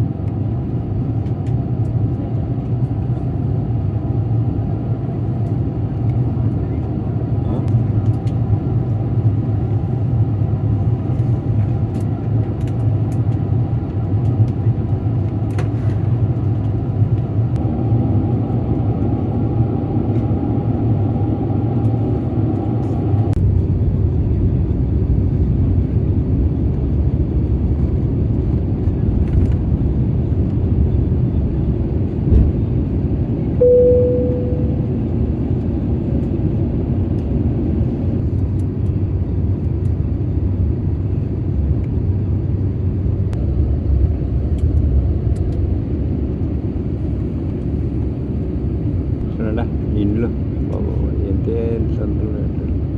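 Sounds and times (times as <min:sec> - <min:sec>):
jet airliner cabin drone: 0:00.0 - 0:52.9
short single tone: 0:33.6 - 0:35.2.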